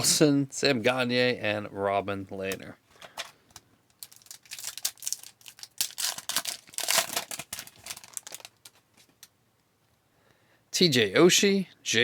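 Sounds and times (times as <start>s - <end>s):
foil pack tearing and crinkling: 4.0s - 8.8s.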